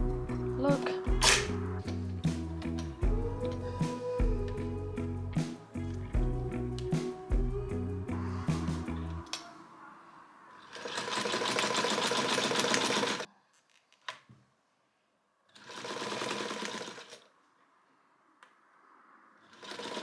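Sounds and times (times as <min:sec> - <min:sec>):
sewing machine stitching: 0:10.6 - 0:13.3, 0:15.5 - 0:17.3, 0:19.5 - 0:20.0.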